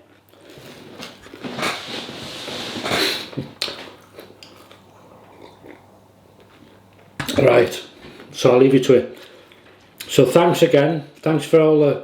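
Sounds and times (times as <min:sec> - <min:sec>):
person eating mouth noises: 0:00.3 - 0:07.3.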